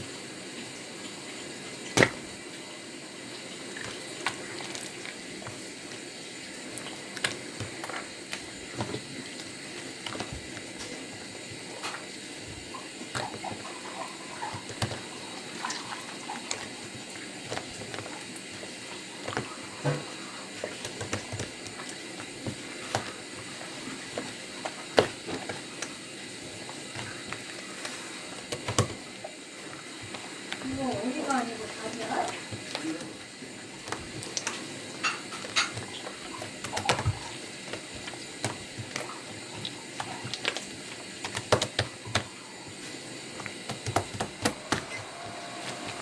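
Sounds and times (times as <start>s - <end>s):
wet clicks and pops: 20.6s - 23.5s, 28.4s - 29.0s, 33.8s - 42.3s, 43.4s - 44.9s.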